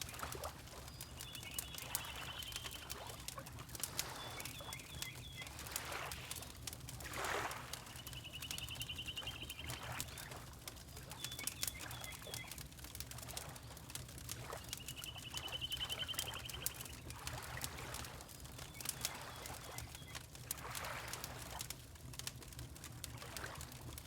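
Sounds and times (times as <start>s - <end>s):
water lapping: 0.0s - 24.0s
wood fire crackling: 0.0s - 24.0s
bird trilling and chirping: 1.2s - 2.8s, 8.0s - 9.9s, 14.8s - 16.9s.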